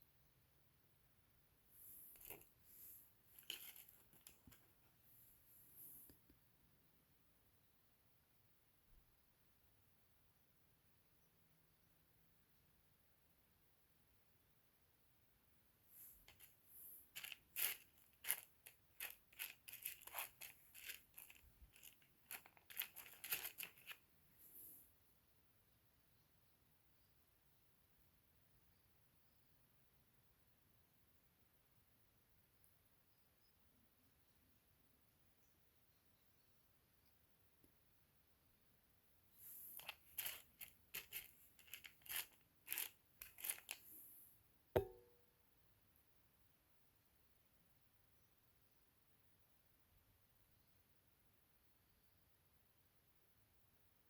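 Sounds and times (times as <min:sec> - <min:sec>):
soft rustle: 0:01.6 - 0:06.3, 0:15.8 - 0:25.0, 0:39.3 - 0:44.4
stone chips clicking together: 0:17.2 - 0:23.9, 0:39.8 - 0:43.8.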